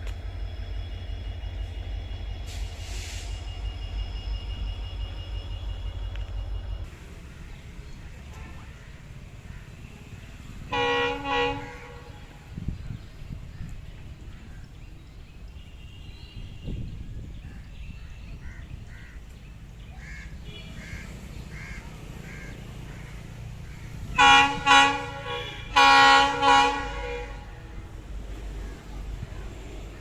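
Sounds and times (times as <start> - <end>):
train rumbling: 0.0 - 15.5, 18.2 - 30.0
locomotive horn blasts: 10.6 - 12.6, 24.1 - 27.8.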